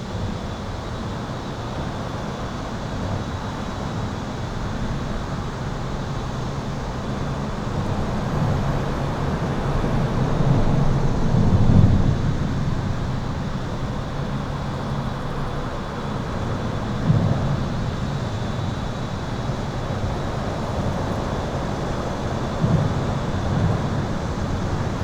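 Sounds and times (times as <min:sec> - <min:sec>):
highway traffic roar: 0:05.7 - 0:25.0.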